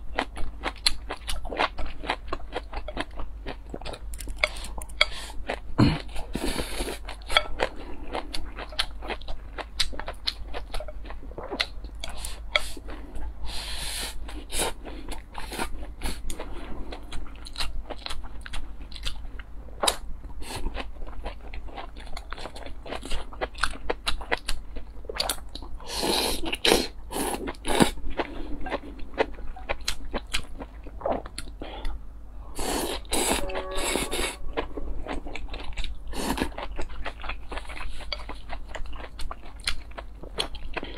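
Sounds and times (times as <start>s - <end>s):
crunchy chewing: 32.6s - 40.9s.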